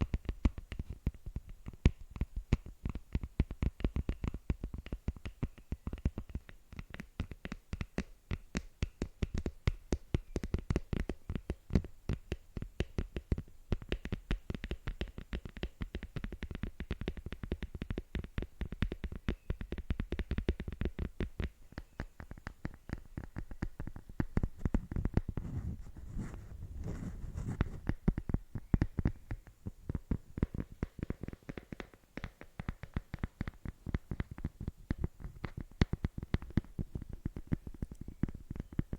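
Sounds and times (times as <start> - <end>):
fingers tapping: 0.0 - 25.6, 26.2 - 38.9
scratching: 21.6 - 38.4.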